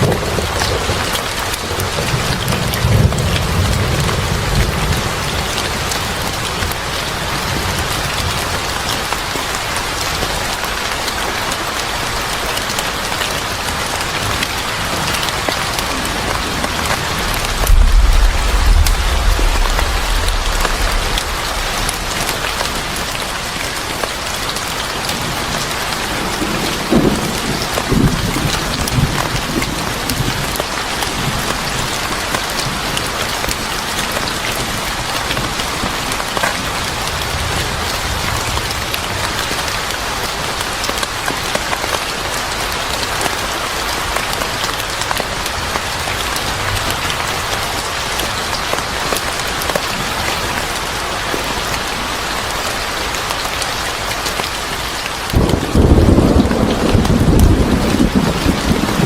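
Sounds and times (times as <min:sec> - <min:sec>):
heavy rain falling: 0:00.0 - 0:59.0
thunder rumbling: 0:14.7 - 0:25.5, 0:55.3 - 0:59.0.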